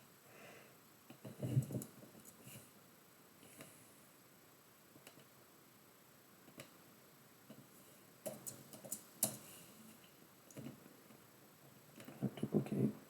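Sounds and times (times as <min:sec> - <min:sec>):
faint small clicks and taps: 0:06.5 - 0:06.8.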